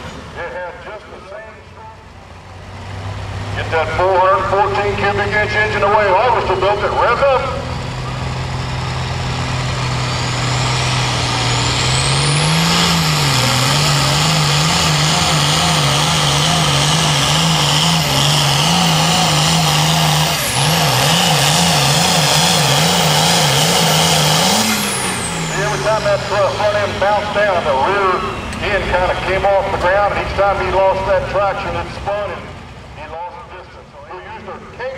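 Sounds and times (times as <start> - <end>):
tractor diesel engine under load: 0.0 - 34.9
high whine: 23.4 - 31.2.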